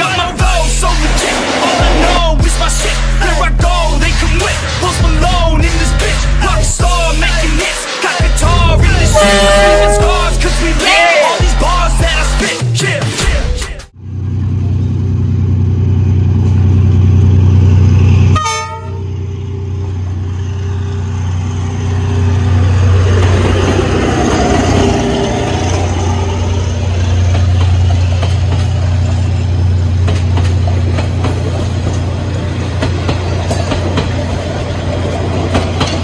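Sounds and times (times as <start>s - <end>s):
diesel locomotive engine drone: 0.0s - 10.8s, 13.9s - 36.0s
train passing: 0.0s - 11.9s, 14.0s - 36.0s
train horn: 9.0s - 10.6s, 18.3s - 19.2s.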